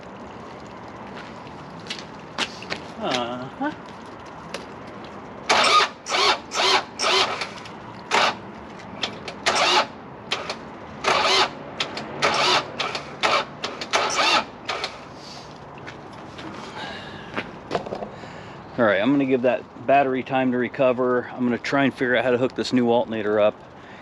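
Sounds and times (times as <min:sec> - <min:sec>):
starter motor cranking: 0:05.5 - 0:08.4, 0:09.0 - 0:15.1.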